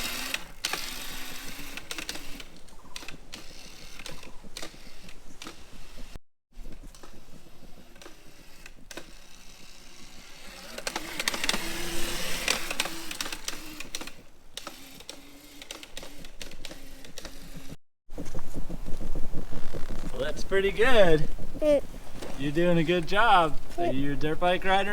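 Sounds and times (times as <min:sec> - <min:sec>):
electric motor whine: 0:00.0 - 0:02.7, 0:06.9 - 0:17.8.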